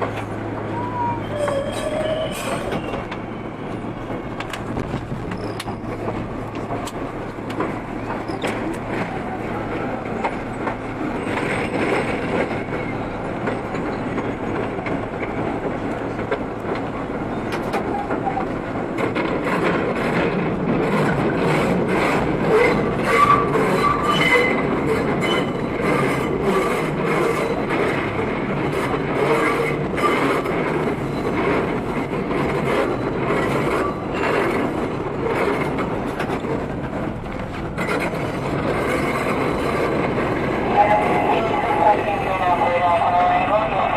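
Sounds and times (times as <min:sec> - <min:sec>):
wheel squeals: 0:00.7 - 0:03.6, 0:05.3 - 0:06.2, 0:22.5 - 0:26.6
wheels clicking over rail joints: 0:04.1 - 0:40.6.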